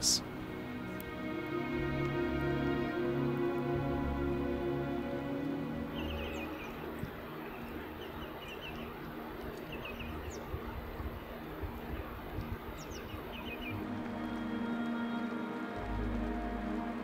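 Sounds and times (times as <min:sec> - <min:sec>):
steady background hiss: 0:00.0 - 0:17.0
small birds chirping: 0:05.0 - 0:16.6.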